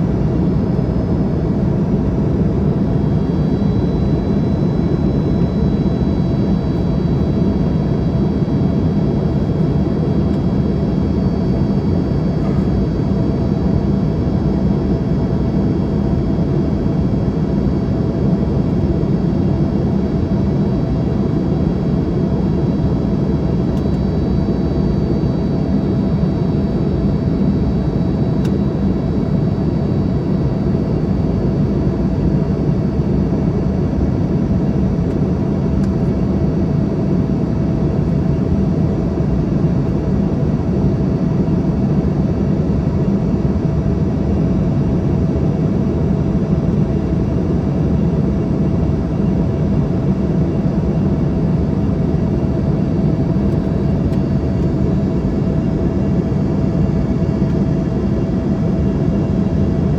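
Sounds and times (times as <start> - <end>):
airplane cabin rumble: 0.0 - 15.2, 47.6 - 59.9
thin jet engine whine: 0.0 - 59.9.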